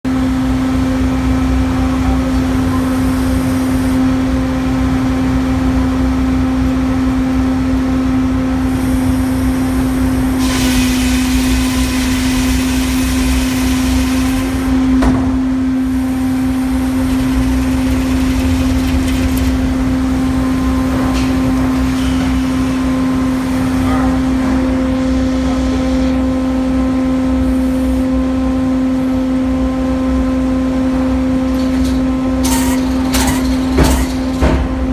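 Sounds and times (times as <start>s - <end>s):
sawmill machinery humming: 0.1s - 34.9s
rushing hiss: 8.6s - 15.0s.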